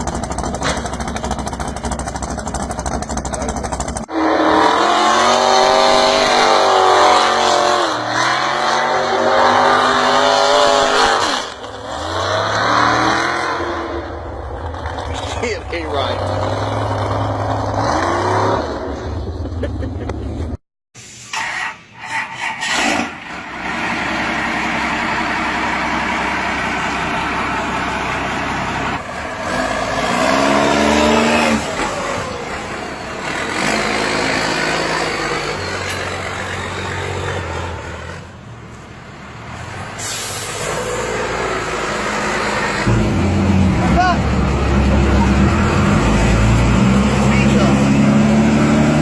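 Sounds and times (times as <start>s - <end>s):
truck engines revving: 0.0s - 20.6s, 21.3s - 49.0s
short hiss: 21.0s - 21.8s, 40.0s - 40.7s.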